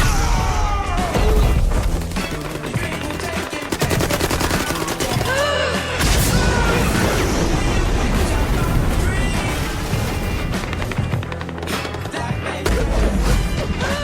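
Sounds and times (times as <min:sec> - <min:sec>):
dramatic music score: 0:00.0 - 0:14.0
automatic gunfire: 0:01.9 - 0:05.5.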